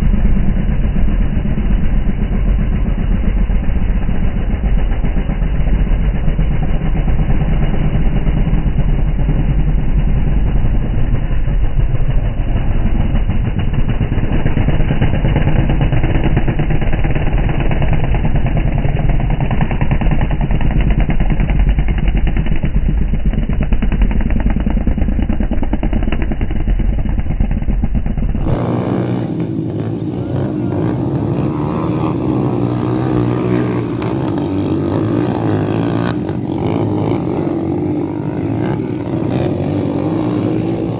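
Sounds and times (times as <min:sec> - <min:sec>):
motorcycle engines rumbling: 0:00.0 - 0:40.9.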